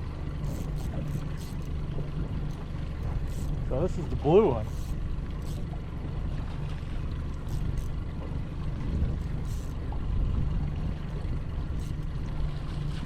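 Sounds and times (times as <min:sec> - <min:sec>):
outboard motor idling: 0:00.0 - 0:13.0
wind buffeting microphone: 0:08.4 - 0:13.0.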